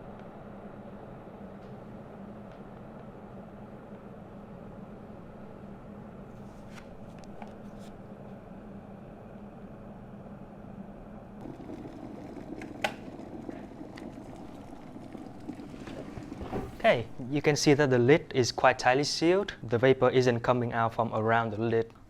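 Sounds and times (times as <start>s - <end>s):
water boiling in a kettle: 11.4s - 17.4s.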